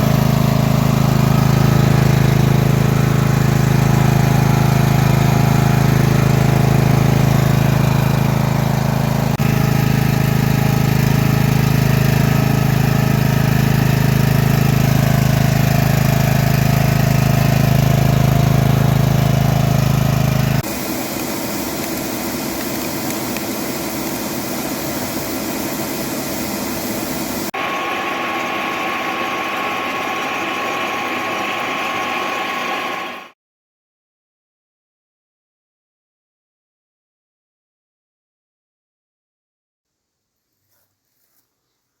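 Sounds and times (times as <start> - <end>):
small engine humming: 0.0 - 33.4
high whine: 20.4 - 33.4.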